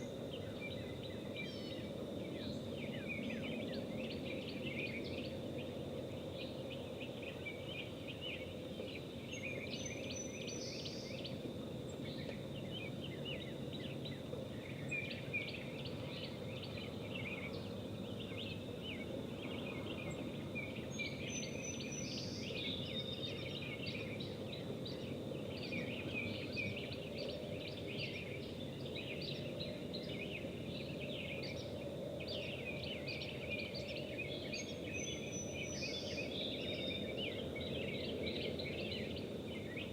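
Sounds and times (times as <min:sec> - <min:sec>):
wild birds chirping and singing: 0:00.0 - 0:39.9.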